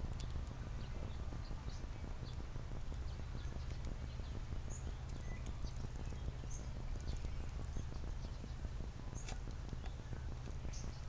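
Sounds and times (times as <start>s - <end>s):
low rumble: 0.0s - 11.0s
small birds chirping: 0.0s - 11.0s
soft irregular clicks: 0.1s - 0.6s, 5.1s - 8.4s.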